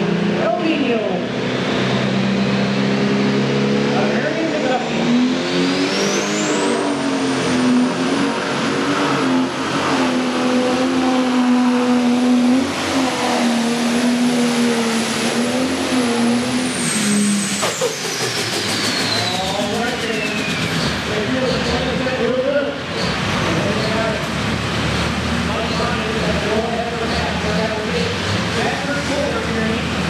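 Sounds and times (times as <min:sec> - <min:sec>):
high turbo whine: 0:00.0 - 0:30.0
diesel tractor engine running flat out: 0:13.5 - 0:30.0.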